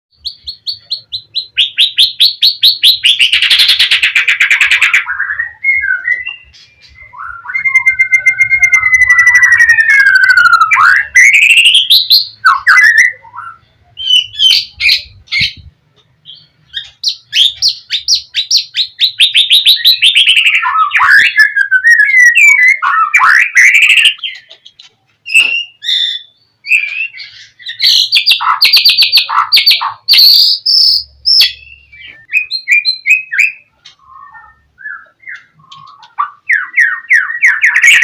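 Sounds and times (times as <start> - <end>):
songbird singing: 0.1 - 38.0.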